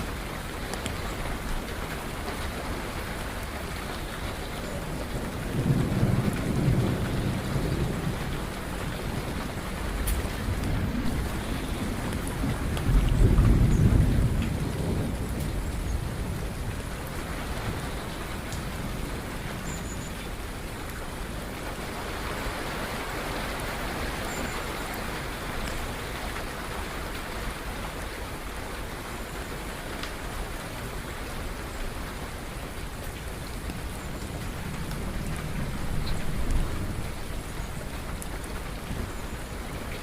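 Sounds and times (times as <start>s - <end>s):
steady rain falling: 0.0s - 40.0s
low thunder rumble: 4.6s - 20.1s, 33.6s - 40.0s.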